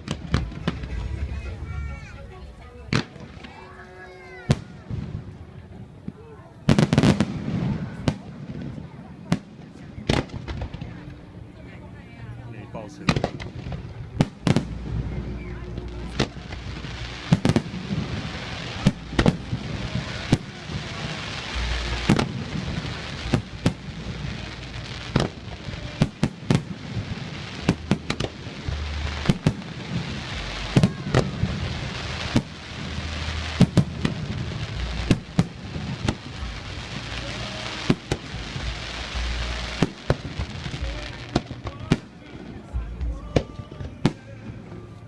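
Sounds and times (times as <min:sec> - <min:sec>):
deep rumbling booms: 0:00.0 - 0:03.6
fireworks bangs: 0:00.0 - 0:11.1, 0:13.1 - 0:44.6
fireworks crackle: 0:00.0 - 0:11.2, 0:12.8 - 0:44.9.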